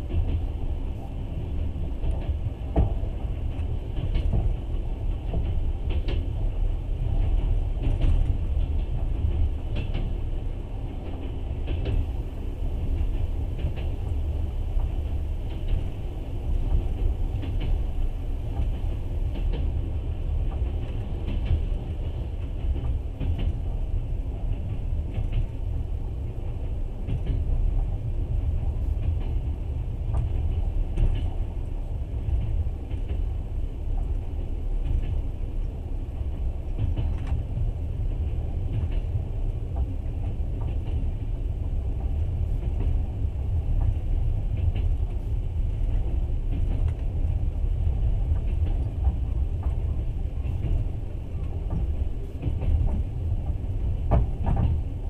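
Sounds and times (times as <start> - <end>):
train wheels rumbling on rails: 0.0 - 55.0
light irregular clicks: 45.8 - 47.1.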